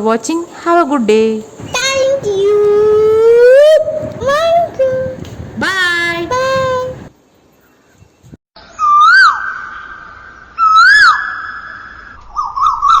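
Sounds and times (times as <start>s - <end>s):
bird-like whistled calls: 8.6s - 13.0s.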